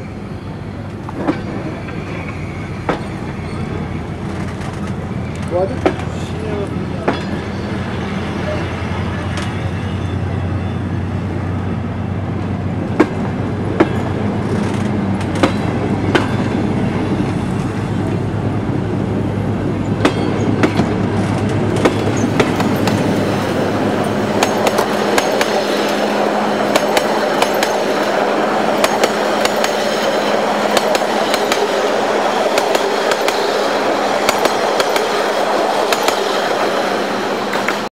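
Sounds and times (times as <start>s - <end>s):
train coaches rolling: 0.0s - 37.9s
wheels clicking over rail joints: 24.0s - 31.8s.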